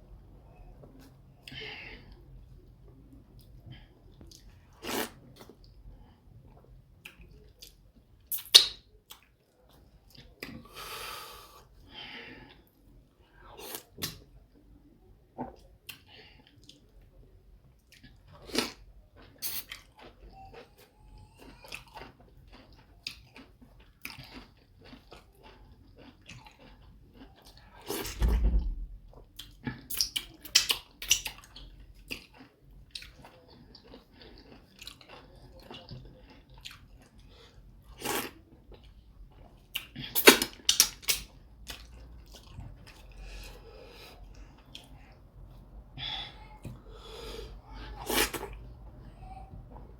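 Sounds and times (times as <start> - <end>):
person chewing wetly: 17.7 - 28.1, 29.3 - 49.8.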